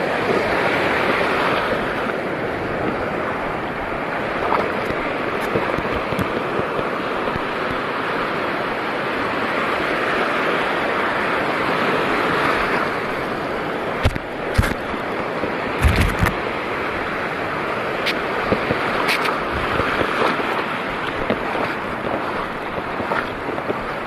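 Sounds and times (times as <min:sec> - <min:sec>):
seawater rushing at shore: 0:00.0 - 0:24.0.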